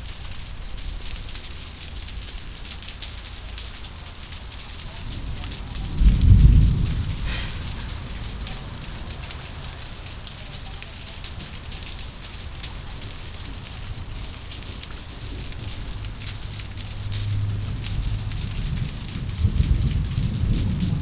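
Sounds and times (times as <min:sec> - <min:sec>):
steady rain pattering: 0:00.0 - 0:21.0
thunderclap: 0:04.9 - 0:09.8, 0:14.6 - 0:21.0.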